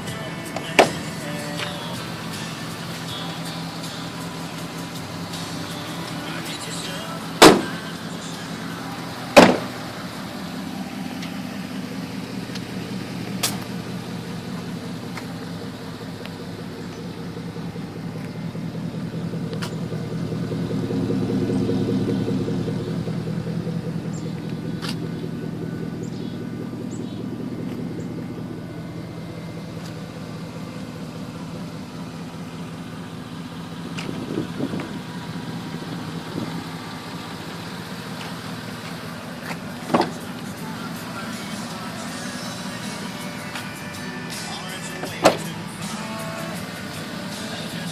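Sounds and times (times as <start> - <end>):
truck engine idling: 0.0 - 47.9
loud sharp knocks: 9.4 - 9.8.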